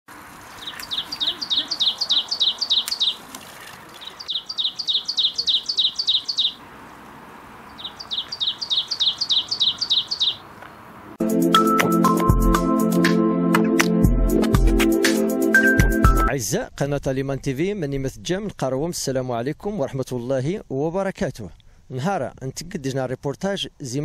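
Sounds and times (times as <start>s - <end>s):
songbird chirping: 0.2s - 11.0s.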